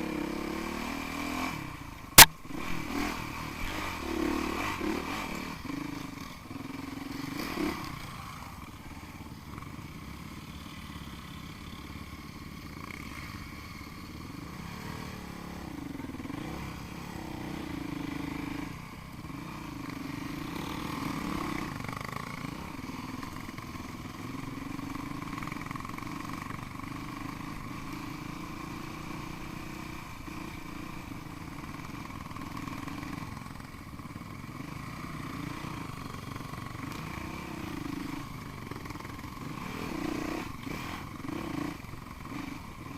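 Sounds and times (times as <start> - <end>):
motorcycle engine revving: 0.0 - 42.9
sharp knock: 2.2 - 2.4.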